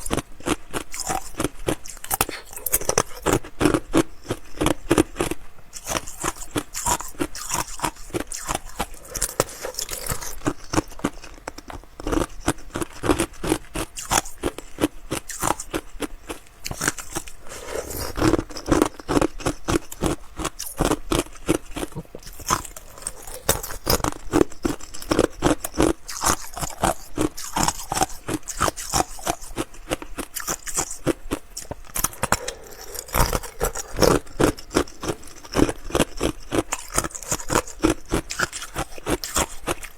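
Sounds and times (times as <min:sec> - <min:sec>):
chewing ice crunches: 0:00.0 - 0:39.9.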